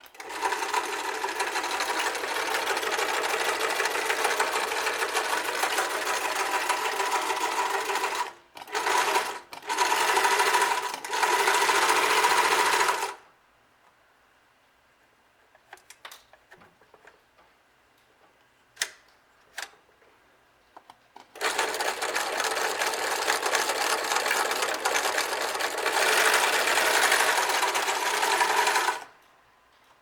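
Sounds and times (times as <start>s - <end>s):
sewing machine running: 0.0s - 13.2s, 21.2s - 29.1s.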